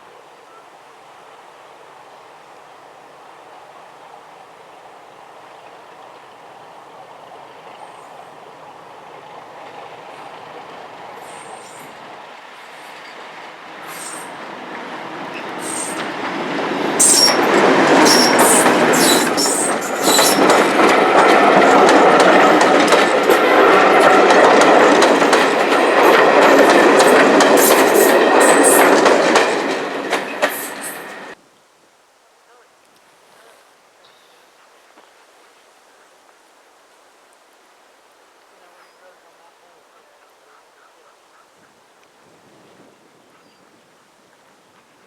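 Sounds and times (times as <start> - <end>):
train wheels rumbling and clicking: 6.0 - 31.4
high-pitched wheel squeals: 17.0 - 20.5.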